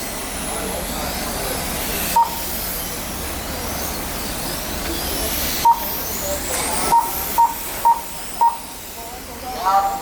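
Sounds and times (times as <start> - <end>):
short sharp beeps: 2.2 - 2.4, 6.9 - 8.7.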